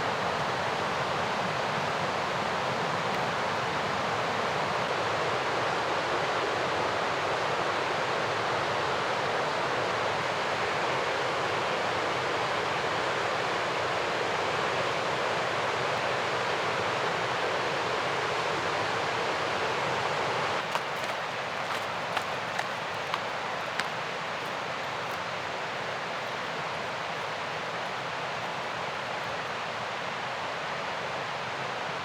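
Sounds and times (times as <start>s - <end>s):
river rushing: 20.6s - 31.0s.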